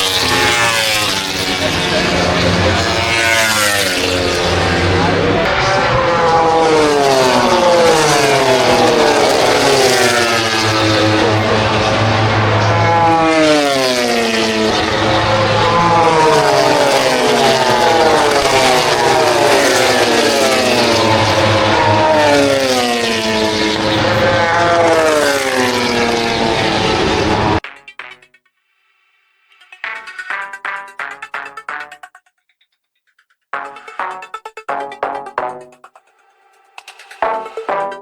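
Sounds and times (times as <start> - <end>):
racing motorcycles passing by: 0.0 - 27.6, 34.1 - 38.0.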